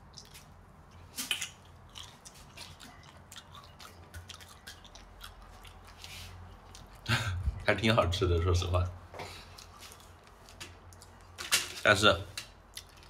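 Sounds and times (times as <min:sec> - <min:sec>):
person biting and chewing food: 0:00.0 - 0:07.0
wet mouth clicks: 0:01.2 - 0:07.0.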